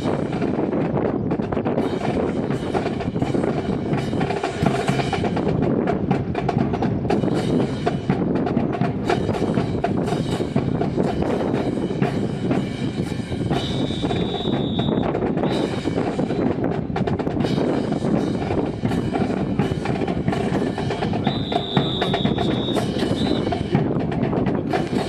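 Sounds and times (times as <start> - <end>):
drum strokes: 0.0 - 25.0.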